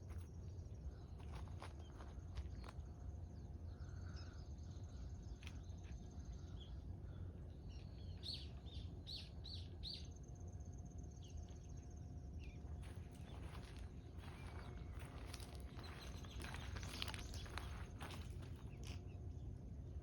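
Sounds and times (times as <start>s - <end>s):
low outdoor rumble: 0.0s - 20.0s
bird chirping: 13.2s - 19.1s.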